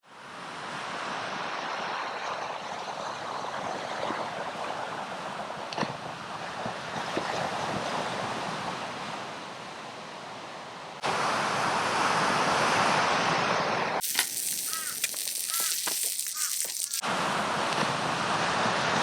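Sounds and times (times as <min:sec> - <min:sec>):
short bird calls: 0:14.4 - 0:17.0.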